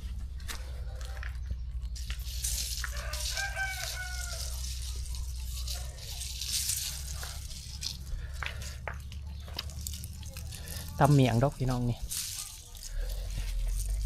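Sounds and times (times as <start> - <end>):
rooster crowing: 2.8 - 4.9.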